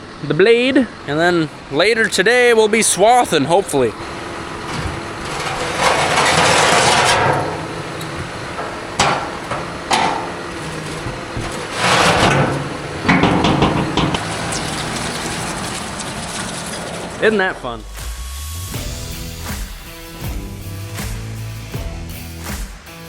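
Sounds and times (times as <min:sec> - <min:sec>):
machine engine running: 0:00.0 - 0:19.2
metal parts knocking and clanking: 0:03.7 - 0:17.3.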